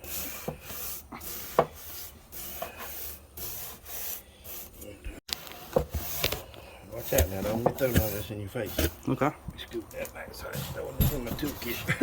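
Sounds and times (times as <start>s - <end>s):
brush scrubbing metal fins: 6.0s - 9.0s.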